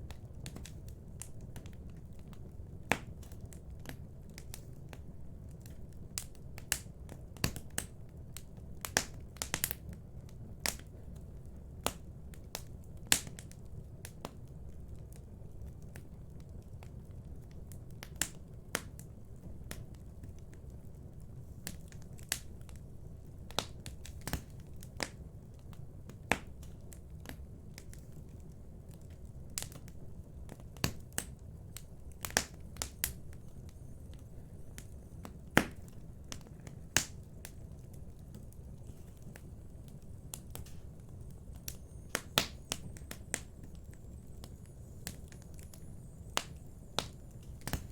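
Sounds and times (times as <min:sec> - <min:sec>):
low steady background noise: 0:00.0 - 0:47.9
wood fire crackling: 0:00.0 - 0:47.9.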